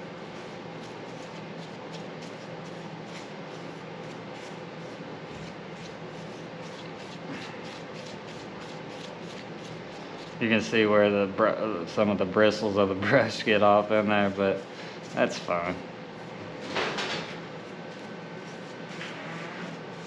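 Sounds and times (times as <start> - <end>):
steady low hum: 0.0 - 20.0
paintbrush swishing: 0.2 - 10.5, 17.3 - 20.0.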